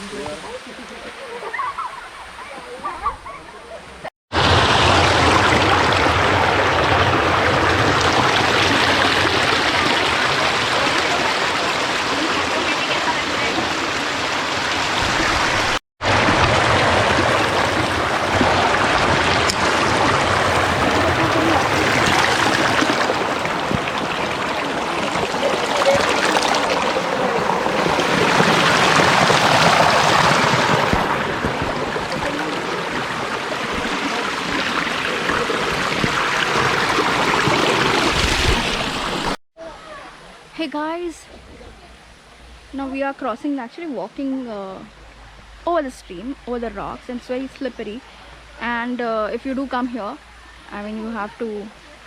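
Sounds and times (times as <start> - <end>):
stream rushing over rocks: 4.3 - 39.4.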